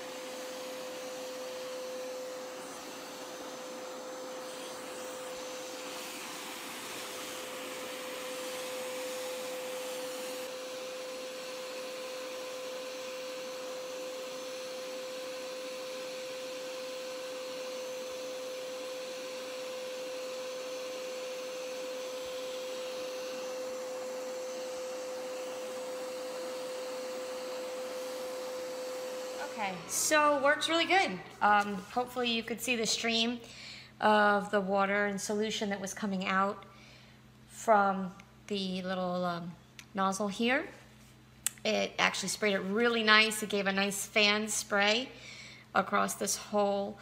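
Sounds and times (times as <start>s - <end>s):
carpet cleaner suction whine: 0.0s - 33.4s, 41.7s - 45.2s.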